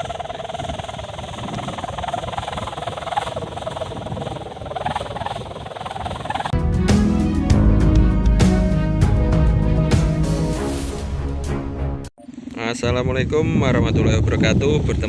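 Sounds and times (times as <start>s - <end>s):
steady wavering hum: 0.0s - 6.5s
wind noise: 0.0s - 6.6s, 12.3s - 15.0s.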